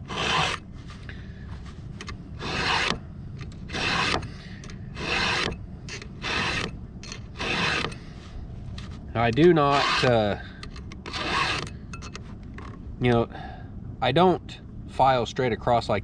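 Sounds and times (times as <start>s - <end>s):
file rasping on chain: 0.0s - 0.6s, 2.4s - 3.0s, 3.7s - 4.3s, 5.0s - 8.0s, 9.7s - 10.4s, 11.1s - 11.7s.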